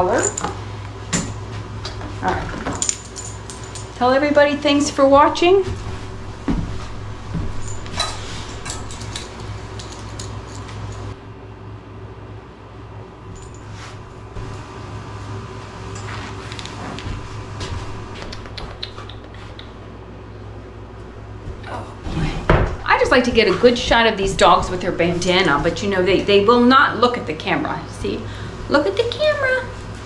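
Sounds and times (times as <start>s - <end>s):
light metal clinks and rattles: 0.0s - 0.6s, 2.5s - 4.3s, 7.3s - 11.2s, 13.3s - 14.0s
low steady hum: 0.0s - 30.0s.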